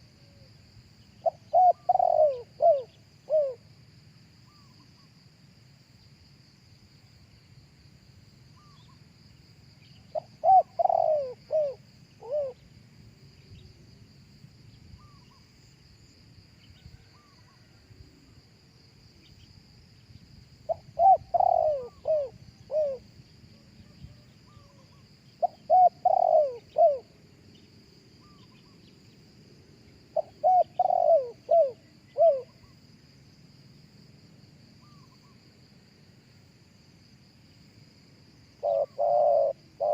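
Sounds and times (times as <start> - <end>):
high insect drone: 0.0 - 39.9
dove cooing: 1.2 - 3.6, 10.1 - 12.6, 20.7 - 23.1, 24.0 - 27.1, 30.2 - 32.7, 38.6 - 39.9.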